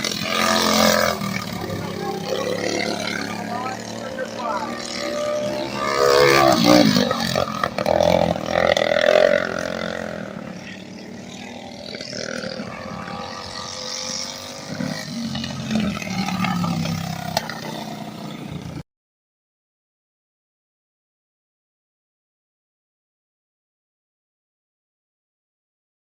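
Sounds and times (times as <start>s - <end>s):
kart engines revving: 0.0s - 18.8s.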